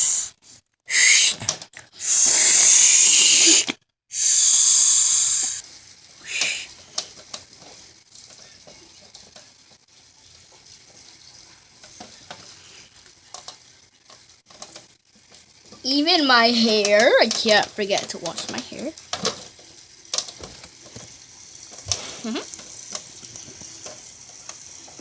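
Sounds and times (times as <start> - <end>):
child making shushing sound: 0.9 - 5.6, 6.3 - 6.8.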